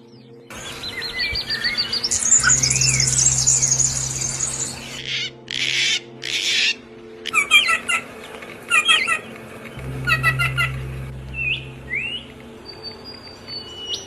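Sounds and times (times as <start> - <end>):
bird trilling: 0.6 - 8.1, 8.7 - 14.0
low hum: 1.4 - 5.0, 9.4 - 14.0
harsh raspy bird calls: 2.2 - 8.0.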